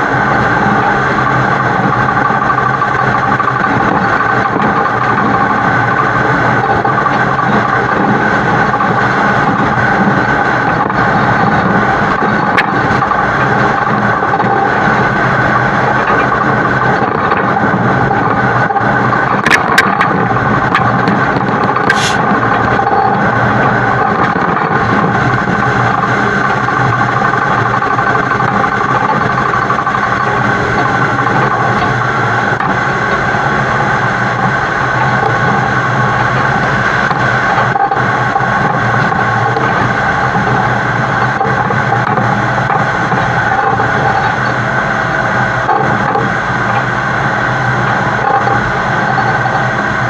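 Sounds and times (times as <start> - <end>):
road and wind noise: 0.0 - 50.0
truck engine running: 0.0 - 50.0.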